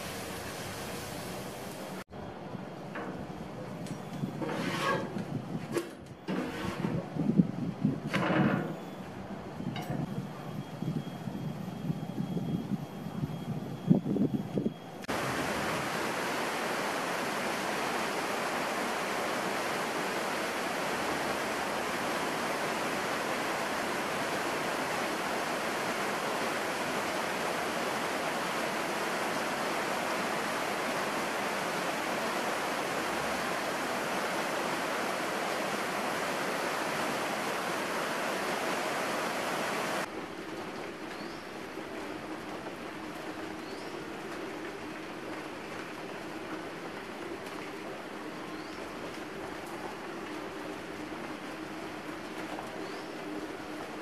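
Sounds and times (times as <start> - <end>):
heavy rain on leaves: 0.0 - 2.0, 15.1 - 54.0.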